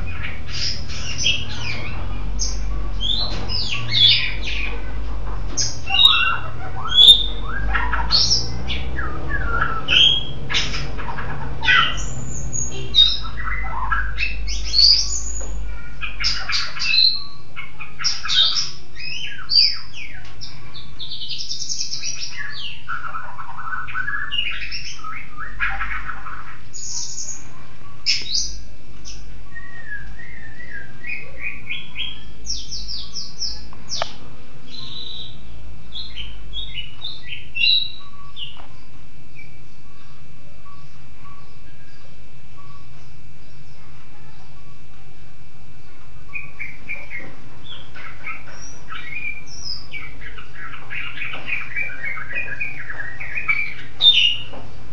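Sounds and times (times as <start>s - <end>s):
songbird singing: 0.0s - 54.9s.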